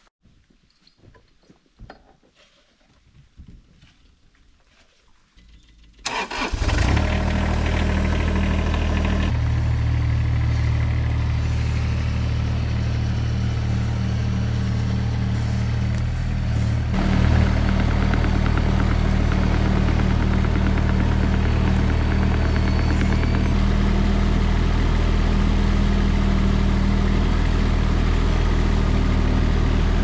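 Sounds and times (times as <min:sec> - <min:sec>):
excavator diesel engine: 0:06.0 - 0:30.0.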